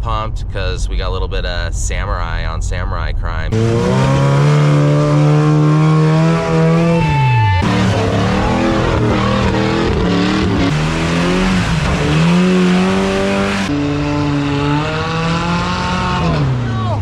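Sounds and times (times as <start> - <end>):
engines revving: 3.5 - 17.0.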